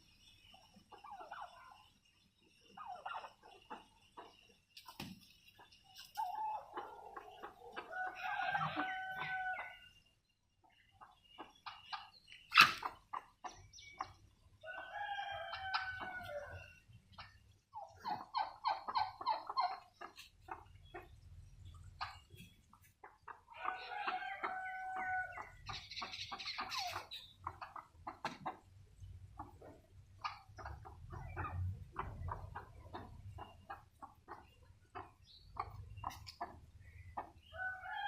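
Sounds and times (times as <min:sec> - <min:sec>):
fowl calling: 0:06.1 - 0:09.9.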